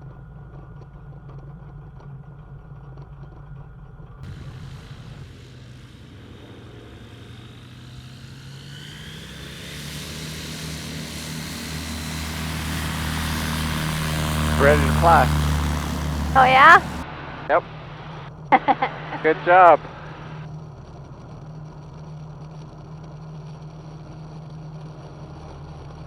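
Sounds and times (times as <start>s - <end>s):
light aircraft engine and propeller: 4.2s - 26.0s.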